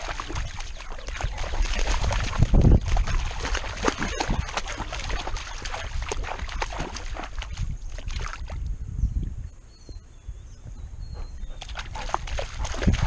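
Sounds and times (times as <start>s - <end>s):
water splashing and sloshing: 0.0s - 8.7s, 11.6s - 13.0s.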